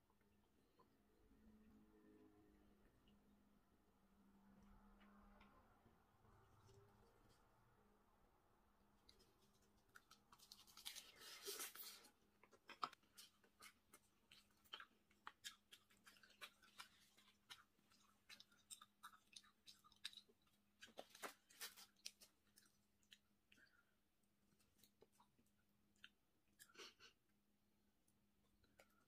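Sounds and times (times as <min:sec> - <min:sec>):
person chewing with mouth clicks: 0:09.9 - 0:27.1.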